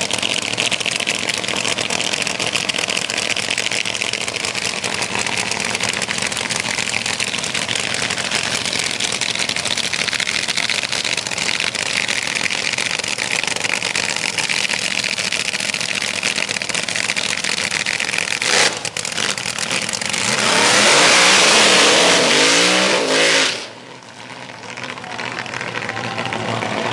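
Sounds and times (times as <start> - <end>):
drag car engines running loudly: 0.0 - 26.9
engine revving up: 18.4 - 23.8.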